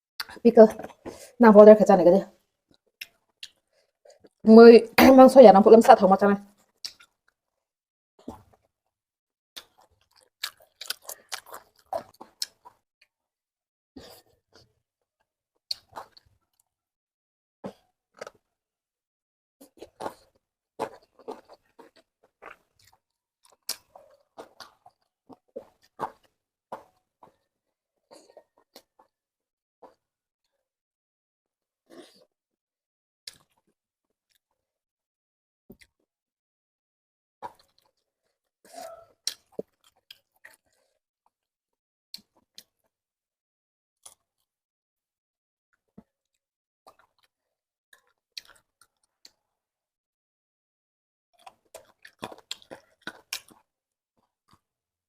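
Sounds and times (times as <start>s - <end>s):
person chewing crunchy food: 9.6s - 12.9s, 15.7s - 16.6s, 17.7s - 18.5s, 19.6s - 29.2s, 37.4s - 41.4s, 46.9s - 49.4s, 51.4s - 54.6s.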